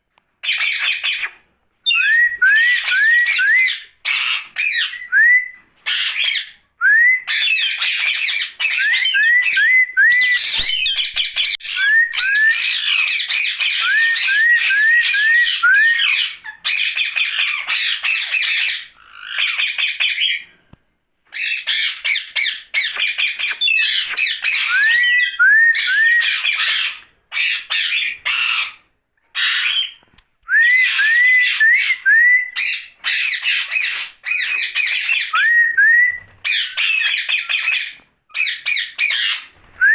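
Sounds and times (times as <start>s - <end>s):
parakeet squawking: 0.4s - 5.0s, 5.8s - 6.6s, 10.4s - 20.4s, 21.3s - 25.3s, 26.2s - 28.8s, 29.4s - 30.0s, 32.6s - 35.3s.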